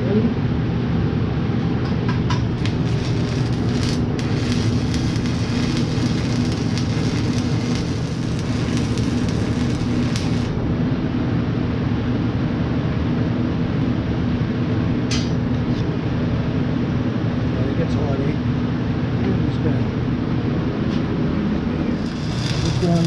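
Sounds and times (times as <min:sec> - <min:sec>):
low steady hum: 0:00.0 - 0:23.0
scratchy welding burst: 0:02.5 - 0:10.6, 0:22.0 - 0:23.0
welding arc crackling: 0:02.5 - 0:10.6, 0:21.9 - 0:23.0.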